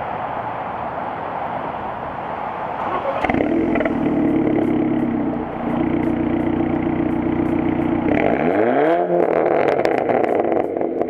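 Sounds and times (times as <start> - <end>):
car engine idling and revving: 2.8 - 11.0.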